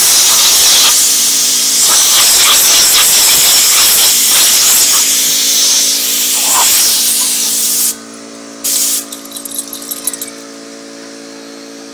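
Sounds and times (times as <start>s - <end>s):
compressed air hissing: 0.0s - 8.0s, 8.6s - 9.1s.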